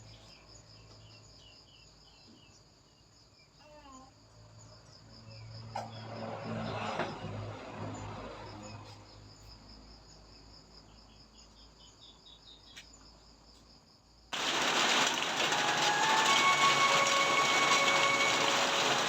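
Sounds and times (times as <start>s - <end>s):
insects chirping: 0.0s - 6.3s, 8.6s - 19.0s
loud rushing noise: 14.4s - 19.0s.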